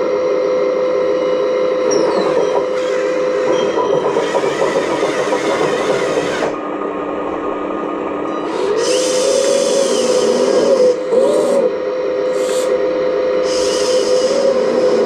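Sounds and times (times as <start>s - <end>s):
small electric motors whining: 1.8s - 6.6s, 8.3s - 12.8s, 13.4s - 15.0s.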